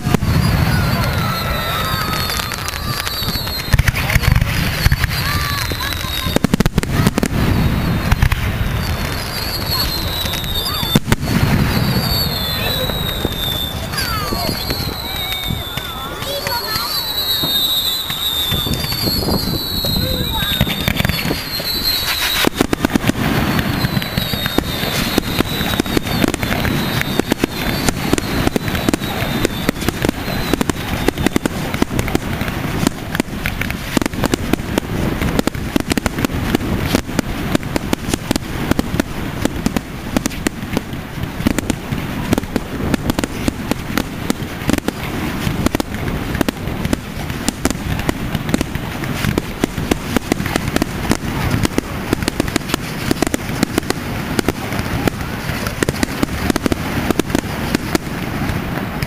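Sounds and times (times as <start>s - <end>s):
falling firework whistles: 0.0s - 59.0s
fireworks bangs and crackling: 0.0s - 59.0s.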